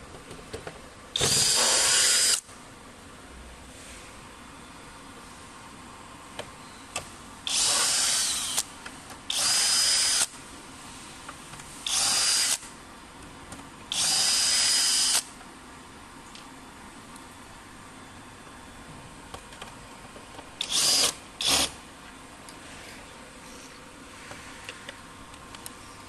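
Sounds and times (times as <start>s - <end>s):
power drill whining: 1.2s - 2.4s, 7.5s - 8.6s, 11.9s - 12.6s, 13.9s - 15.2s, 20.6s - 21.7s.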